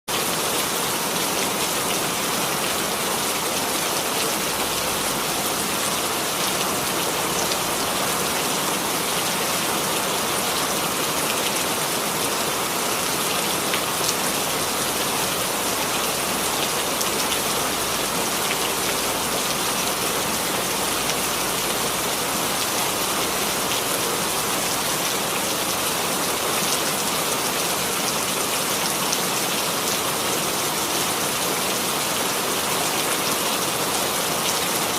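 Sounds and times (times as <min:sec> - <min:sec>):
rain falling on a surface: 0:00.1 - 0:34.9.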